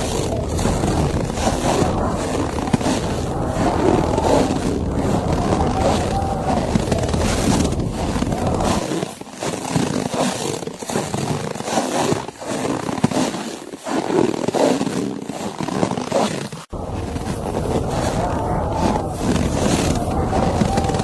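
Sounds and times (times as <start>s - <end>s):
low wind rumble: 0.0s - 8.9s, 16.7s - 21.0s.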